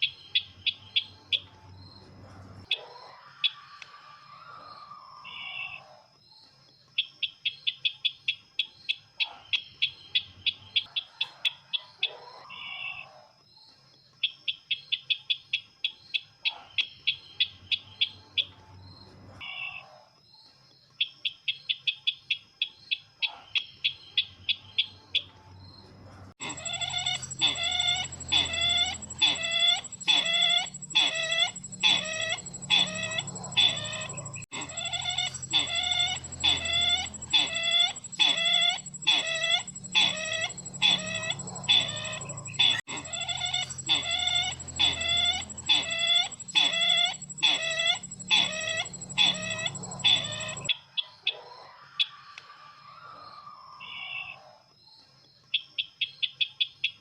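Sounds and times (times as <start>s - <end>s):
bird lure call chirping: 26.4s - 50.7s
steady high whine: 26.4s - 50.7s.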